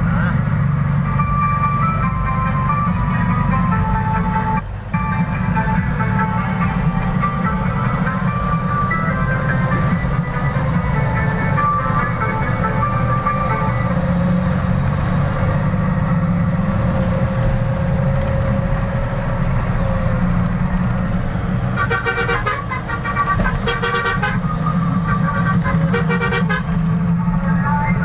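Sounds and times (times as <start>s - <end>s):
truck engine rumbling: 0.0s - 28.0s
vehicle horn honking: 21.8s - 26.8s.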